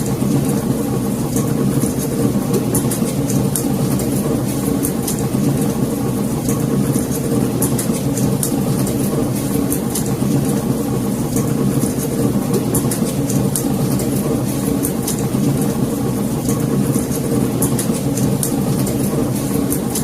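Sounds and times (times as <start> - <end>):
fire crackling and popping: 0.0 - 20.0
fire rumbling: 0.0 - 20.0.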